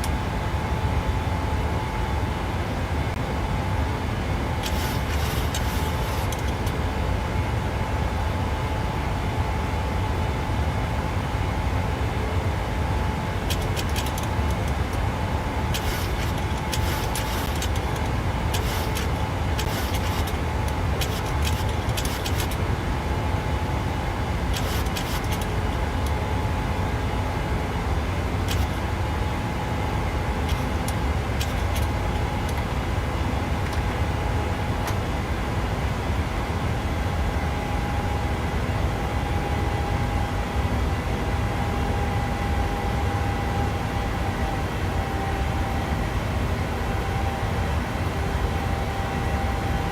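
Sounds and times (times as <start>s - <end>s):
jet engines roaring: 0.0s - 7.8s, 12.2s - 35.6s.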